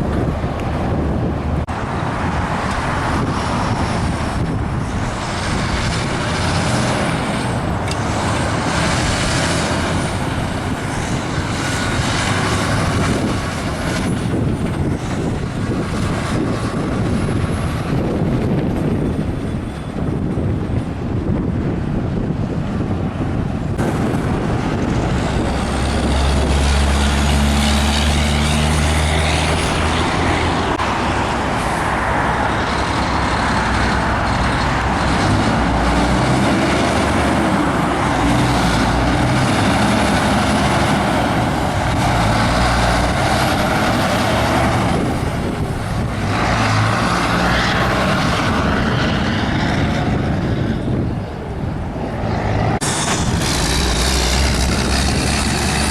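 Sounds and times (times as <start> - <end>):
loud tyre noise: 0.0 - 55.9
trucks passing at speed: 0.0 - 55.9.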